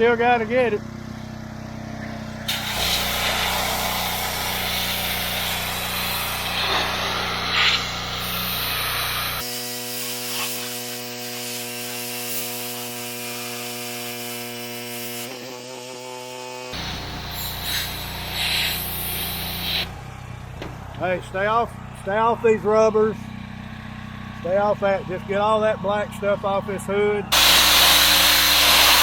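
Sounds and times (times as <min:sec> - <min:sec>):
machine humming: 0:01.2 - 0:09.4, 0:15.2 - 0:19.7, 0:27.3 - 0:29.0
pressure washer spray hissing: 0:02.4 - 0:20.0, 0:27.3 - 0:29.0.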